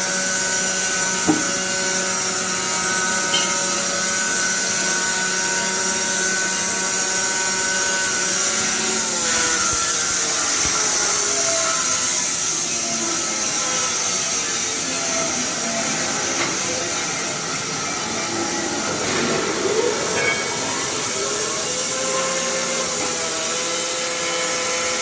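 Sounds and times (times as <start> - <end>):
band sawmill whining: 0.0 - 25.0.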